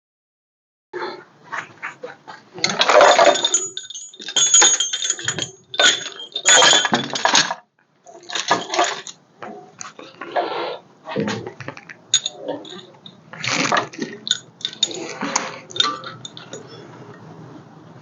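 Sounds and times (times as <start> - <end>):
metal hardware clattering: 2.6 - 7.6, 8.2 - 9.2, 11.8 - 16.8.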